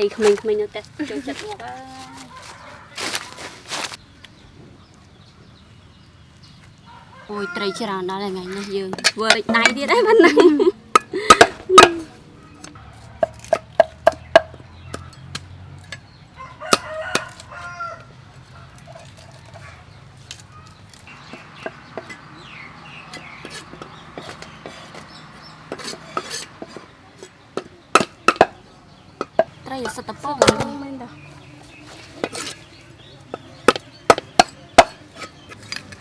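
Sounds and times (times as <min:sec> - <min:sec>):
rooster crowing and clucking: 0:02.0 - 0:03.6, 0:06.8 - 0:08.7, 0:12.8 - 0:13.8, 0:16.2 - 0:19.8.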